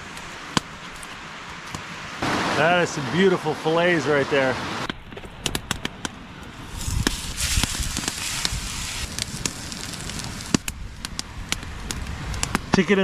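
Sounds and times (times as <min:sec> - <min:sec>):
campfire crackling and popping: 0:00.0 - 0:02.4, 0:04.8 - 0:13.0
fire hissing: 0:06.3 - 0:12.9.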